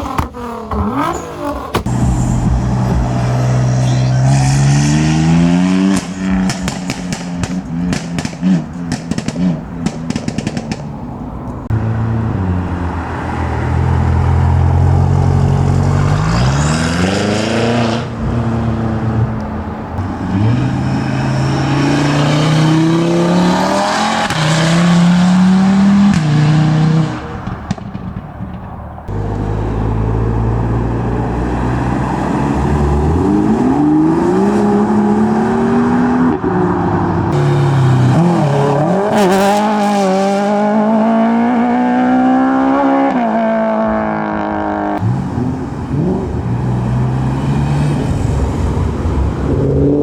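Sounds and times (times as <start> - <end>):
car engines revving and accelerating: 0.0 - 28.2, 29.0 - 50.0.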